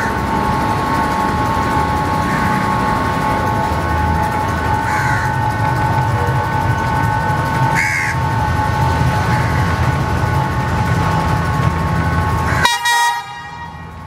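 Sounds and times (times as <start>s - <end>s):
diesel train low rumble: 0.0s - 14.0s
steady whine: 0.0s - 14.0s
train horn blast: 12.6s - 14.0s.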